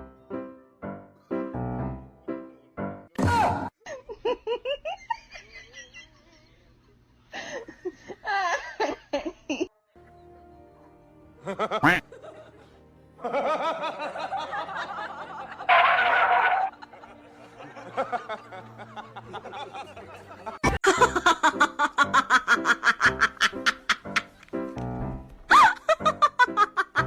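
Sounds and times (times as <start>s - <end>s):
person laughing: 11.4s - 15.9s, 16.8s - 24.4s, 25.5s - 27.0s.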